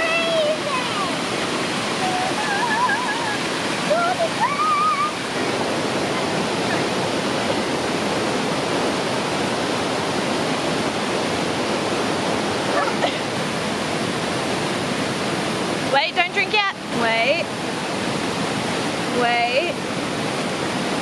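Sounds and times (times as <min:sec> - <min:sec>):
water rushing over rocks: 0:00.0 - 0:21.0.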